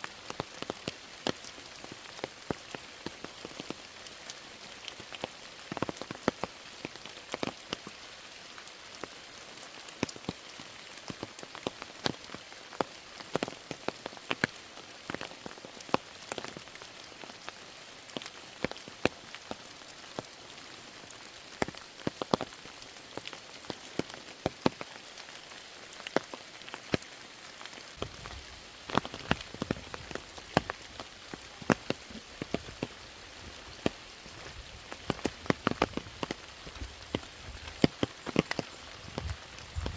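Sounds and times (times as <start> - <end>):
steady rain patter: 0.0 - 39.9
loud raindrops striking: 28.0 - 39.9.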